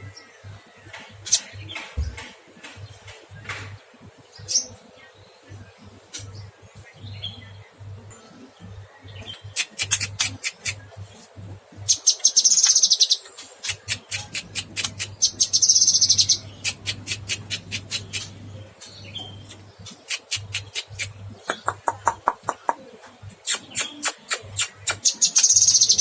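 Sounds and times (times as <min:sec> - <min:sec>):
steady low hum: 0:13.5 - 0:21.9.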